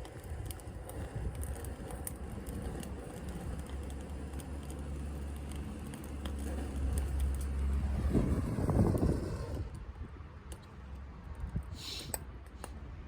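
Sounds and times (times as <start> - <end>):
wood fire crackling: 0.0 - 9.8
low rumble: 0.4 - 10.0.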